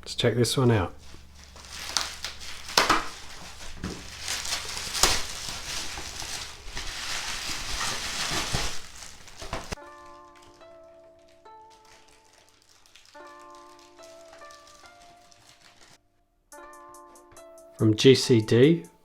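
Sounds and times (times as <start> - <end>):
packaging rustling and crinkling: 1.0 - 16.0.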